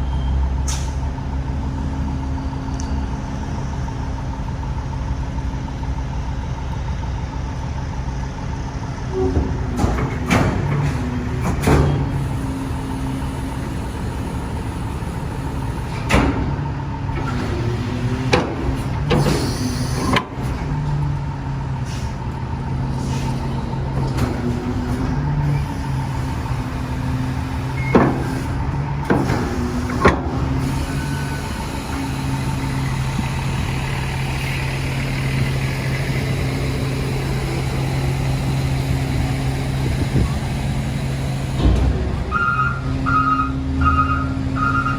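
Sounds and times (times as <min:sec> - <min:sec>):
diesel engine idling: 0:10.8 - 0:44.9.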